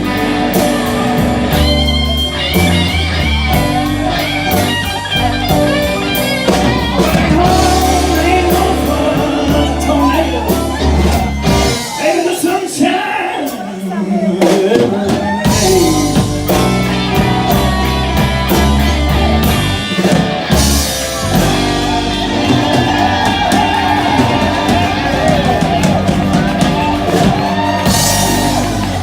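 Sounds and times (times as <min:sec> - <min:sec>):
electric guitar bending notes: 0:00.0 - 0:12.5, 0:15.0 - 0:29.0
live band playing blues: 0:00.0 - 0:29.0.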